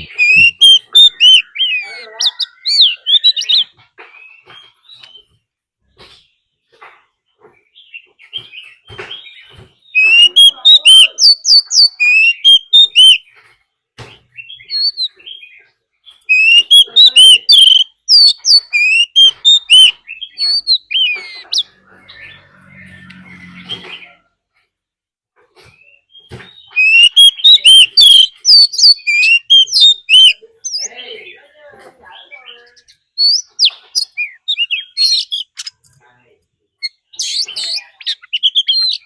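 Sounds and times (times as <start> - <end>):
bird singing whistled phrases: 0.0 - 5.3, 9.2 - 13.2, 14.4 - 21.6, 26.2 - 31.0, 32.7 - 35.7, 36.8 - 39.0
bird chips and calls: 0.0 - 5.4, 6.0 - 13.6, 14.2 - 24.2, 25.6 - 36.0, 36.7 - 39.0.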